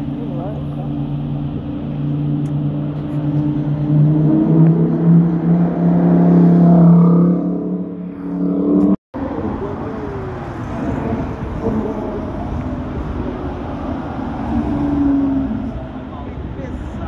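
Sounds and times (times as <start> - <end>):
sports car engine running: 0.0 - 6.8.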